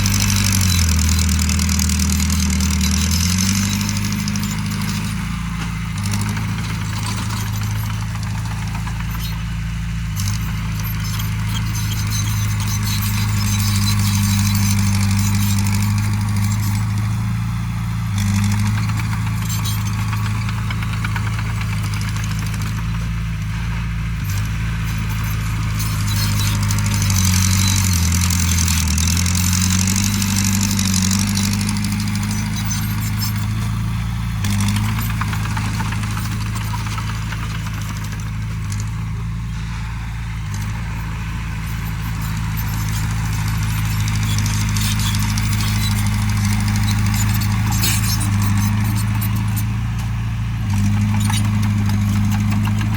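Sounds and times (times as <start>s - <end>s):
light metallic clatter: 0.0s - 17.4s, 18.2s - 52.9s
earthmoving machine diesel engine: 0.0s - 52.9s.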